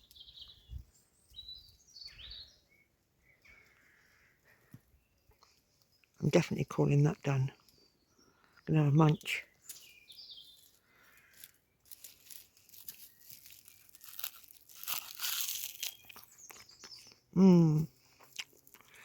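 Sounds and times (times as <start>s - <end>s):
leaves being chewed crunching: 9.1s - 19.0s
person humming: 17.4s - 17.9s.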